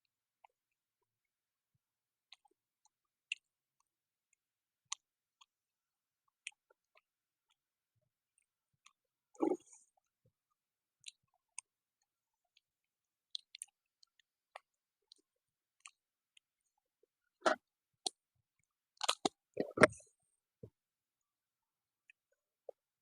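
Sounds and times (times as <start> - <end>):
mouth clicks and chewing: 2.3 - 3.5, 4.9 - 5.5, 6.3 - 7.6, 11.0 - 12.7, 13.3 - 15.2, 15.8 - 16.5, 17.4 - 20.1.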